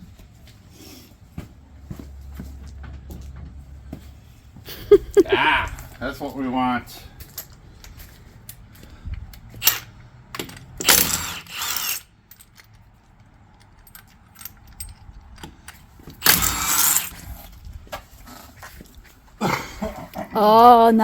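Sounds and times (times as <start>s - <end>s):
metal hand tools clicking and clanking: 9.4s - 17.6s.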